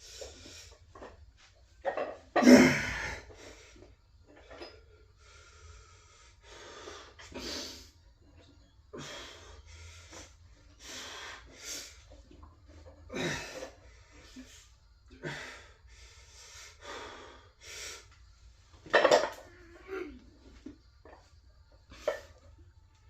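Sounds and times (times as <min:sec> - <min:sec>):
man breathing hard: 0:04.7 - 0:08.0, 0:08.9 - 0:12.2, 0:13.1 - 0:18.2.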